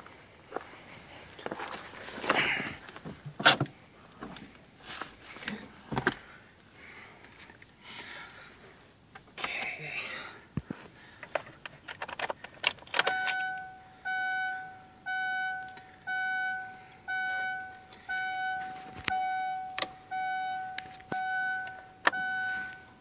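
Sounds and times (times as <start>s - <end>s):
dashboard warning chime beeping: 13.0s - 23.0s.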